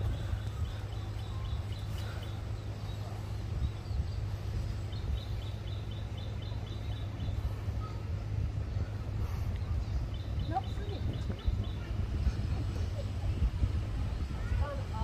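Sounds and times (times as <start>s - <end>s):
bird chirping: 0.0s - 8.0s
low rumble: 0.0s - 15.0s.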